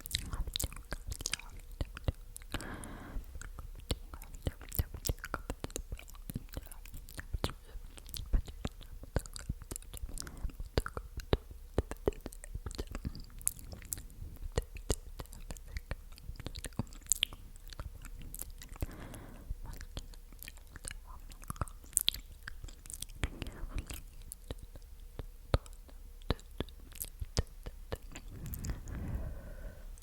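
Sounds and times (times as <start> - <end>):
tongue and lip clicks: 0.0 - 29.3
soft breathing: 2.4 - 5.4, 10.0 - 10.8, 17.4 - 20.3, 22.7 - 24.9, 28.0 - 30.0.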